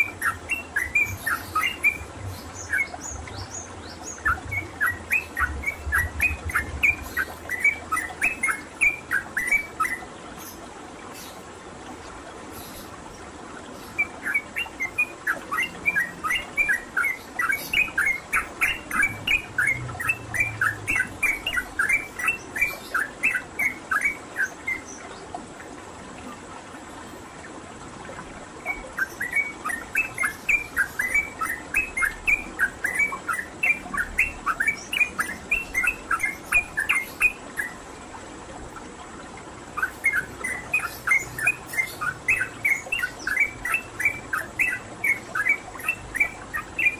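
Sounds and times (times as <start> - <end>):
bird singing rapid chattering phrases: 0.0 - 10.5, 39.8 - 46.9.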